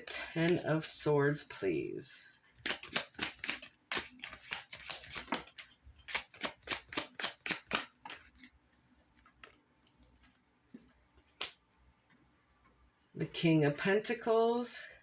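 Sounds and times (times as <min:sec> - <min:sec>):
cards being shuffled by hand: 0:02.5 - 0:11.8.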